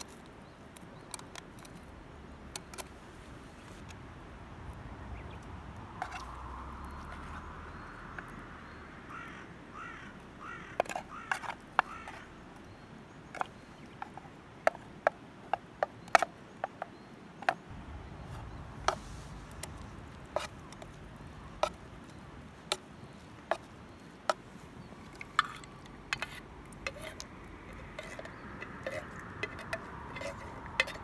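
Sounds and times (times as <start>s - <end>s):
low steady rumble: 3.8s - 9.0s, 17.7s - 22.7s.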